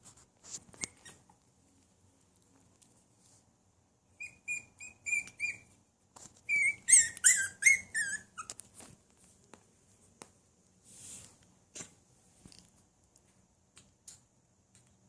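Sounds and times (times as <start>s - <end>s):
puppy whimpering: 4.2s - 5.7s, 6.4s - 8.6s.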